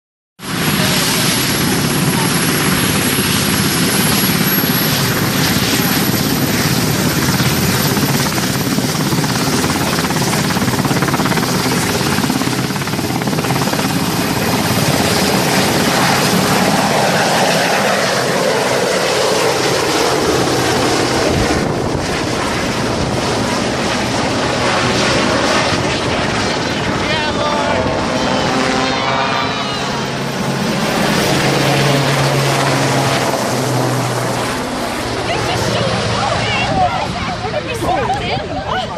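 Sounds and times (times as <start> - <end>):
helicopter taking off: 0.4 - 38.9.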